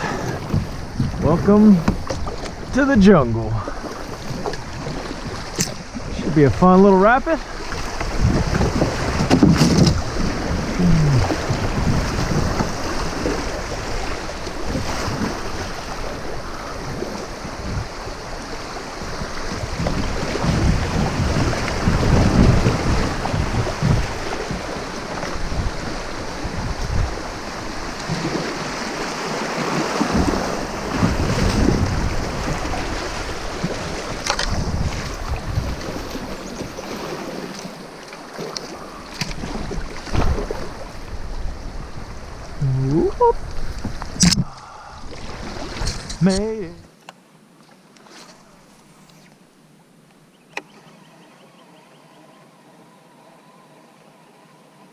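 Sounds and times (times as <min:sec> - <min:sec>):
water rushing through rapid: 0:00.0 - 0:47.0
wind buffeting microphone: 0:07.7 - 0:37.3.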